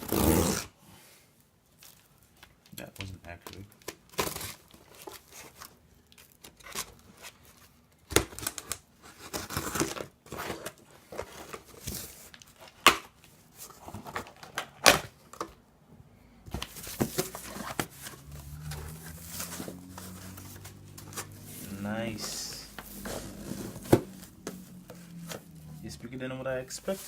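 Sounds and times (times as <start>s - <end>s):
cardboard and tape tearing: 0.0s - 0.7s, 3.8s - 13.0s, 16.6s - 25.8s
packaging rustling: 16.5s - 26.0s, 26.7s - 27.0s.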